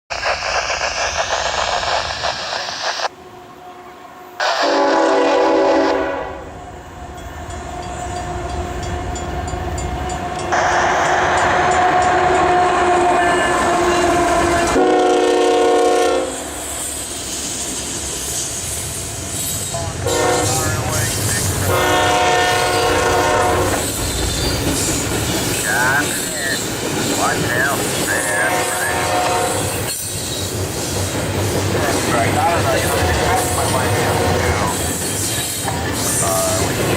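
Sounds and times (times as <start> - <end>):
freight train rumbling: 0.1 - 36.9
locomotive air horn blast: 4.4 - 6.5, 10.5 - 16.5, 20.0 - 21.0, 21.6 - 23.8, 28.2 - 29.7, 33.1 - 34.4.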